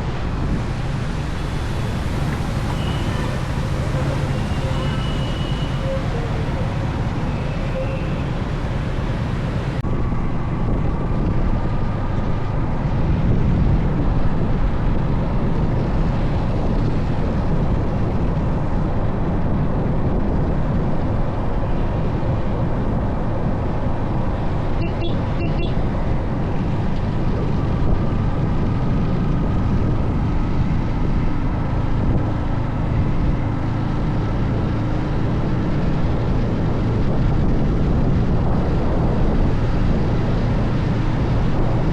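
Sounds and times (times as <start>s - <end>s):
wind and road noise rumble: 0.0s - 41.9s.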